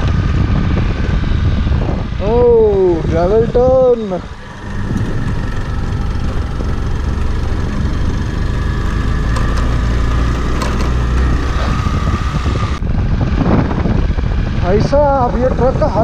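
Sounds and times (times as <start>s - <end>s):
motorcycle engine running: 0.0s - 16.0s
stones ticking against bike: 8.8s - 11.5s.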